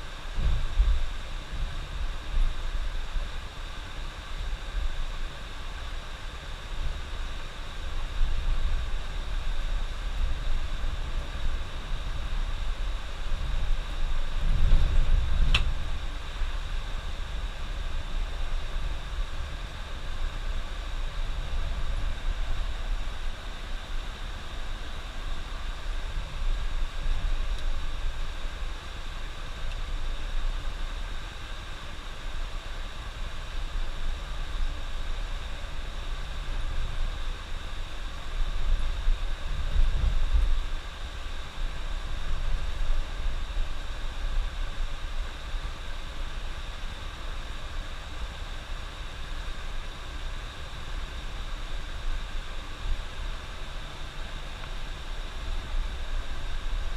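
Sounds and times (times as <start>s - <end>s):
sharp click: 15.5s - 15.7s.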